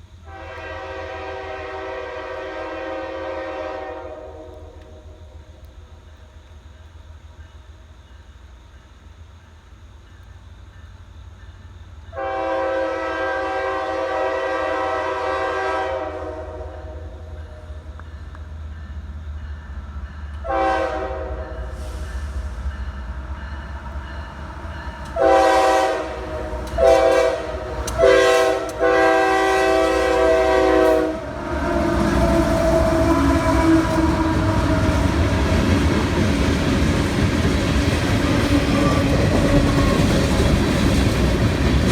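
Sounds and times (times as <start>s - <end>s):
locomotive air horn blasts: 0.2s - 5.1s, 12.1s - 17.2s, 20.4s - 22.2s, 25.1s - 35.6s
train rumble and clatter: 13.2s - 41.9s.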